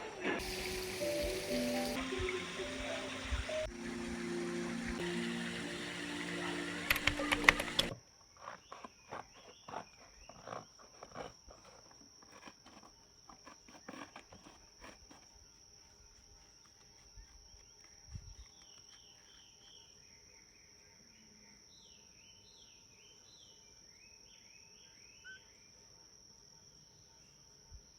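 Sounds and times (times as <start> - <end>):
high insect trill: 0.4 - 7.7
music: 0.4 - 7.9
knocks and clicks: 6.7 - 8.0.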